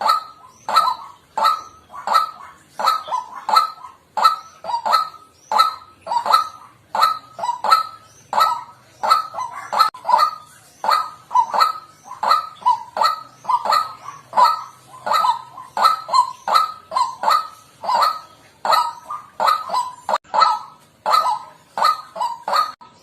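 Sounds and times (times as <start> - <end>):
bird honking calls: 0.0 - 23.0.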